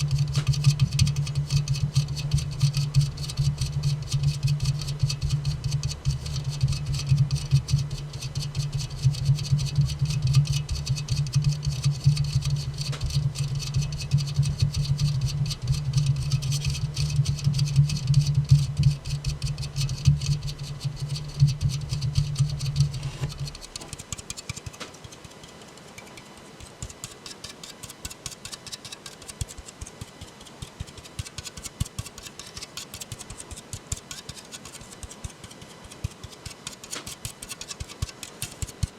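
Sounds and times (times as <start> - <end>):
finger tapping on metal can: 0.1 - 38.9.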